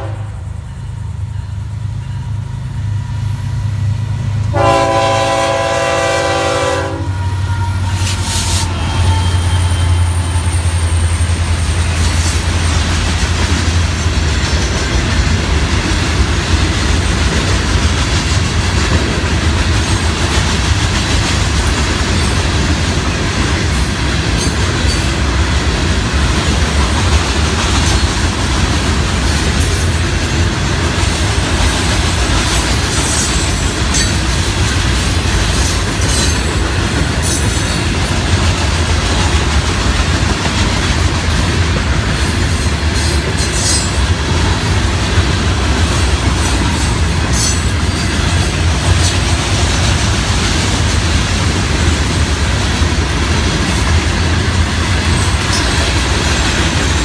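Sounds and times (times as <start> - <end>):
steel wheels rumbling on rail: 0.0 - 57.0
train clanks: 0.0 - 57.0
high wheel squeals: 7.1 - 12.8.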